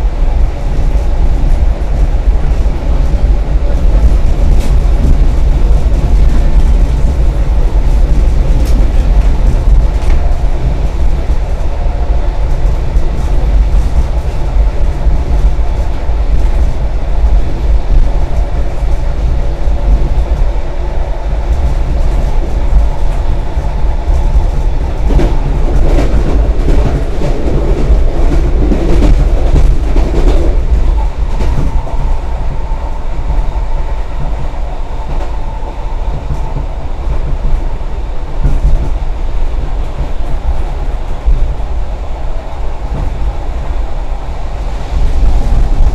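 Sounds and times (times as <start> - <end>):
train rumbling inside carriage: 0.0 - 45.9.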